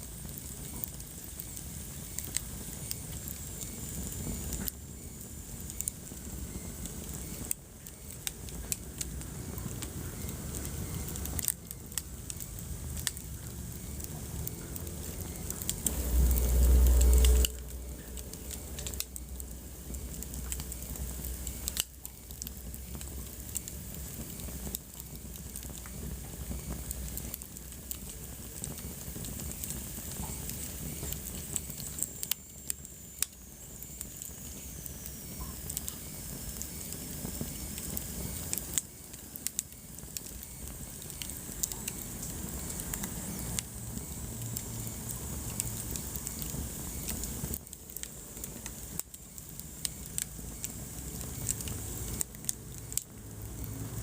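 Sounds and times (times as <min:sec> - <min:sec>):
wood fire crackling and popping: 0:00.0 - 0:54.0
deep rumble: 0:12.8 - 0:21.6.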